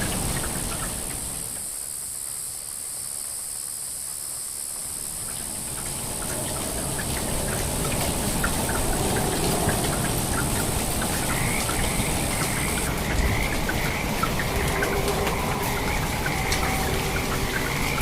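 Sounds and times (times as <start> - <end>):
rain falling: 0.0 - 18.0
raindrops ticking on surfaces: 0.0 - 18.0.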